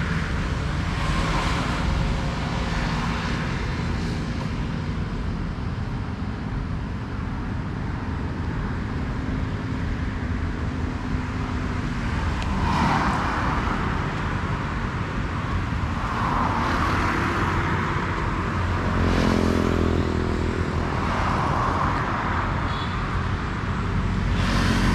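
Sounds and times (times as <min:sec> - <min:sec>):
traffic engine rumble: 0:00.0 - 0:24.9
vehicles passing: 0:00.0 - 0:24.9.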